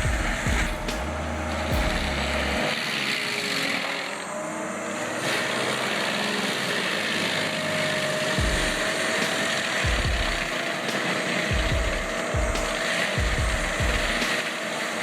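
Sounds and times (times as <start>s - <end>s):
deep low thumps: 0.0s - 2.6s, 8.4s - 8.9s, 9.9s - 10.5s, 11.5s - 14.2s
heavy machinery engine running: 0.0s - 15.0s.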